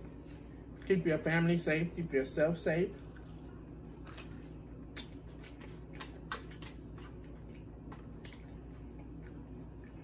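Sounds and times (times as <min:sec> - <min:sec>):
faint steady hum: 0:00.0 - 0:10.0
chewing and mouth sounds: 0:02.9 - 0:10.0.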